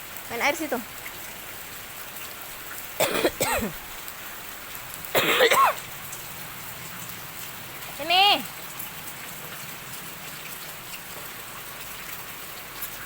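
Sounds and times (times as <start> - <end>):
rain falling and splashing: 0.0 - 13.0.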